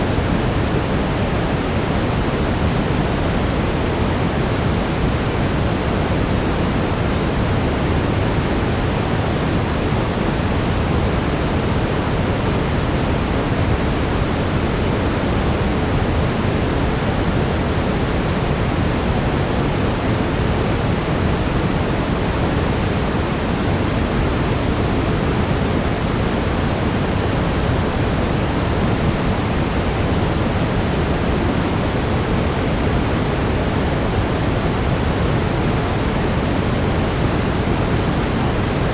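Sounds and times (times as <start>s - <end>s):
brown noise: 0.0s - 38.9s.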